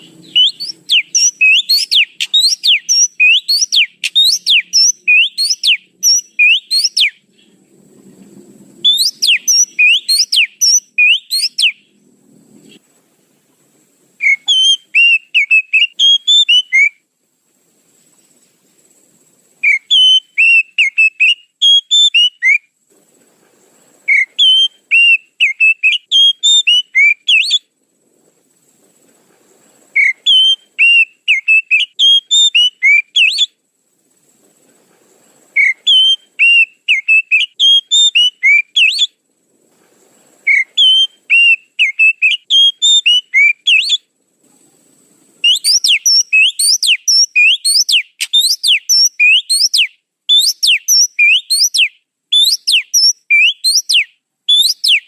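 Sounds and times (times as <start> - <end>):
bird song rapid whistled notes: 0.0 - 7.2, 8.8 - 12.0, 14.2 - 17.0, 19.6 - 22.6, 24.1 - 27.7, 30.0 - 33.6, 35.6 - 39.2, 40.5 - 44.1, 45.4 - 55.0.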